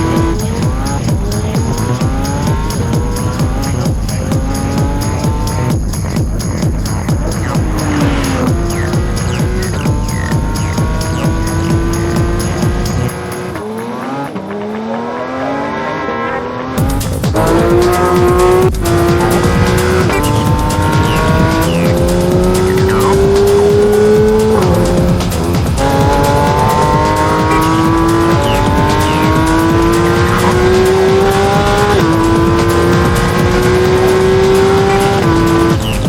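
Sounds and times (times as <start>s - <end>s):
car engine accelerating hard: 0.0s - 36.0s.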